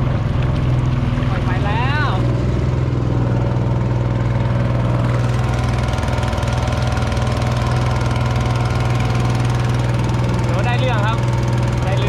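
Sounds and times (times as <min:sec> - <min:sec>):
small boat engine running: 0:00.0 - 0:12.0.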